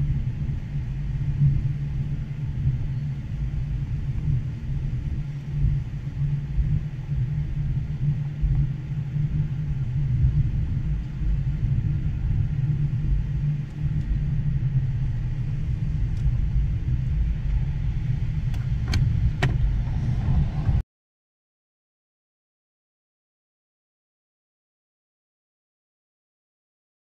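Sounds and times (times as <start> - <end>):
train rumbling past: 14.2 - 20.8.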